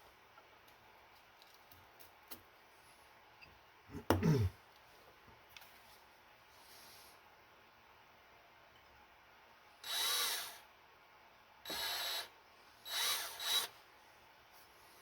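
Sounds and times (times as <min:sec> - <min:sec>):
electric drill bursts: 0:09.8 - 0:10.6, 0:11.7 - 0:13.7.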